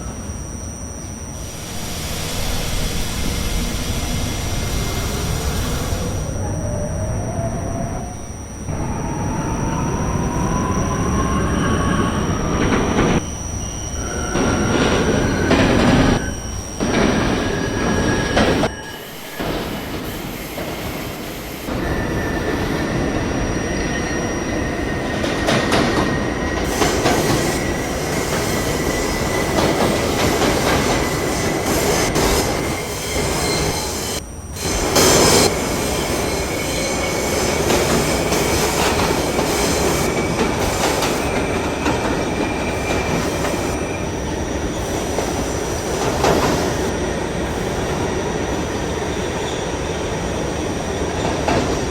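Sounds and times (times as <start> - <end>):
high-pitched wheel squeal: 1.2 - 20.7, 21.7 - 44.3
rumble of wheels on rail: 1.3 - 51.9.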